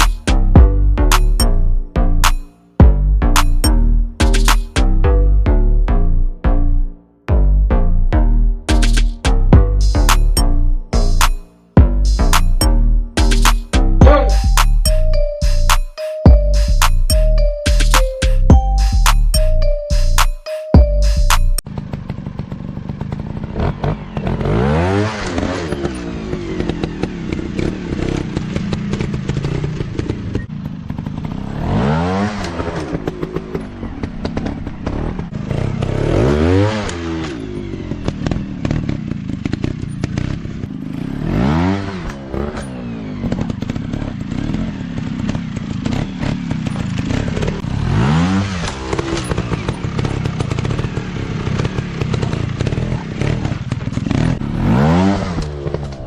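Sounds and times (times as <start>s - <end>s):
dirt bike engines revving: 21.8s - 56.0s.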